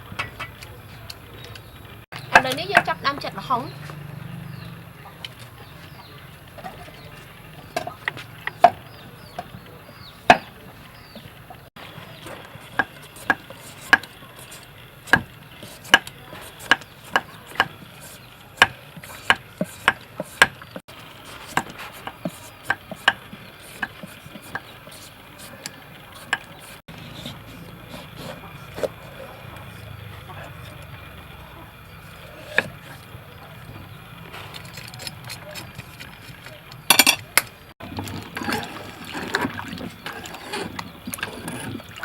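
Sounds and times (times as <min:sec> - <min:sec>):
knife chopping on wooden board: 0:15.1 - 0:29.0, 0:32.3 - 0:32.8.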